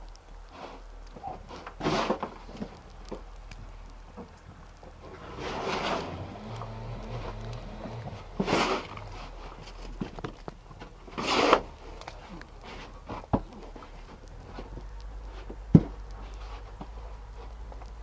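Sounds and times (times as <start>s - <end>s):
low steady hum: 0.0s - 18.0s
rustling swishes: 5.2s - 9.9s.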